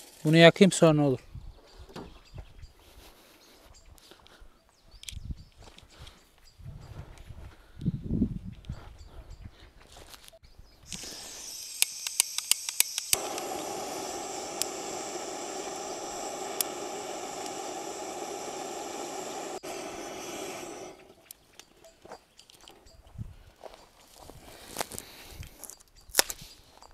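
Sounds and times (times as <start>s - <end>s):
torch flame rushing: 10.9s - 21.2s
gas hissing: 10.9s - 21.3s
igniter clicks: 10.9s - 21.7s.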